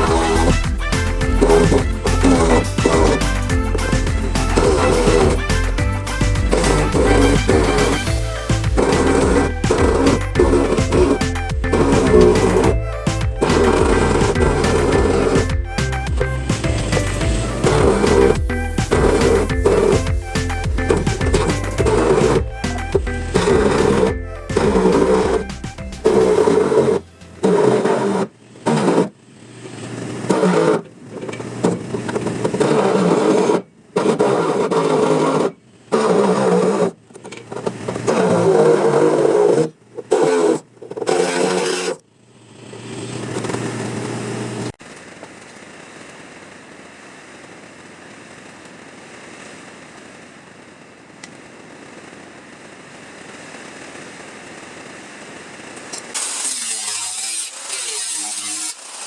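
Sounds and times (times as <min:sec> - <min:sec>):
power tool cutting sheet metal: 0:00.0 - 0:15.9, 0:16.5 - 0:22.4, 0:23.3 - 0:29.2, 0:29.8 - 0:37.0, 0:37.6 - 0:42.0, 0:55.9 - 0:59.0.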